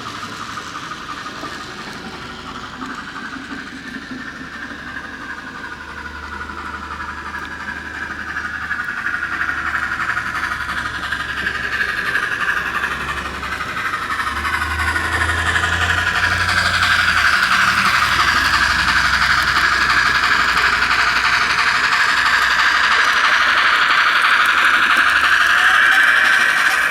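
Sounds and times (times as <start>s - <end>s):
model train whirring and rattling: 0.0s - 26.9s.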